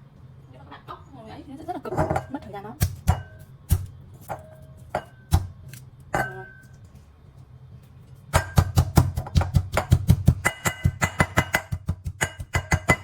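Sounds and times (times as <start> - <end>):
pestle pounding in mortar: 2.0 - 5.6, 8.3 - 13.0.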